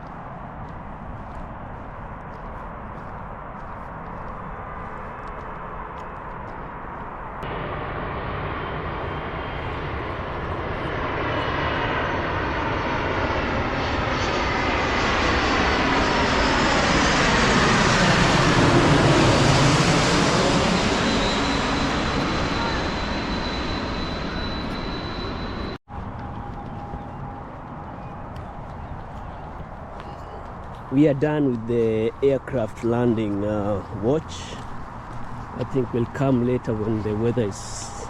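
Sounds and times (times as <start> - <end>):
airliner engine noise overhead: 0.0 - 38.0
thin high whine: 20.8 - 25.8.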